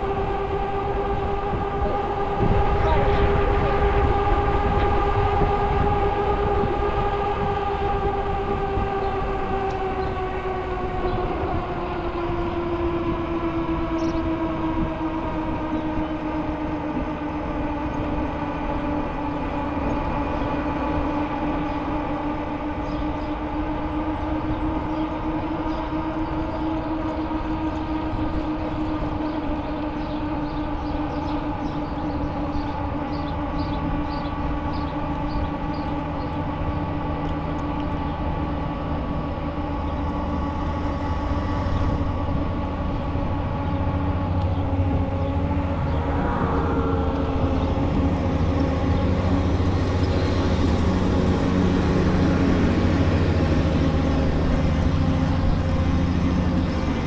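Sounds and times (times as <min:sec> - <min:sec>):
low rumble: 0:00.0 - 0:24.5, 0:40.1 - 0:57.0.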